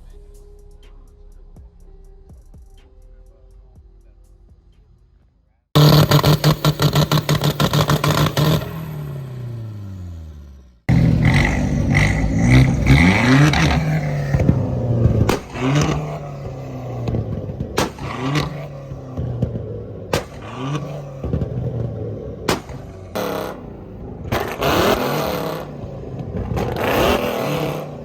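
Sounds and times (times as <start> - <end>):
car engine revving: 5.8 - 28.0
exhaust pops: 5.8 - 28.0.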